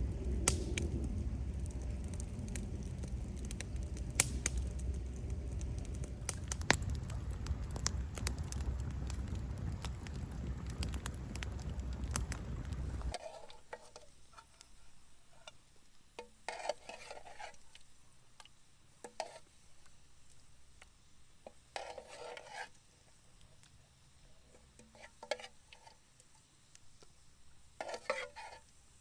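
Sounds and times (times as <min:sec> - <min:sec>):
campfire crackling: 0:00.0 - 0:13.2.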